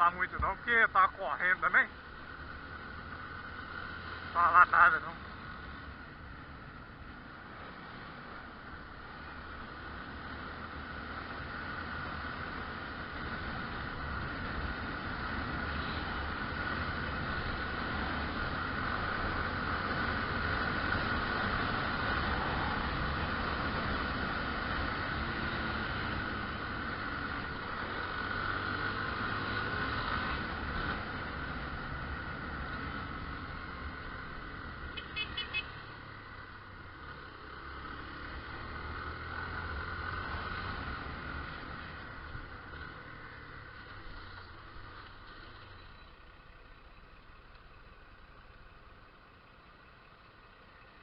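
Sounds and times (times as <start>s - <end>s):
road noise: 0.0s - 51.0s
wind: 0.0s - 51.0s
motorcycle engine running: 30.0s - 40.2s
short horn beeps: 35.0s - 35.8s.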